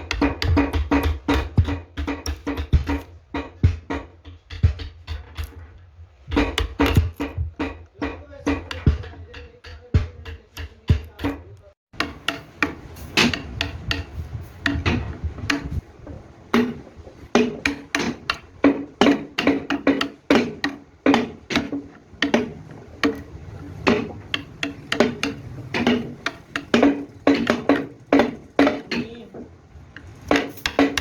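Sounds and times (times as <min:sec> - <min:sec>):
sharp ringing knocks: 0:12.0 - 0:31.0.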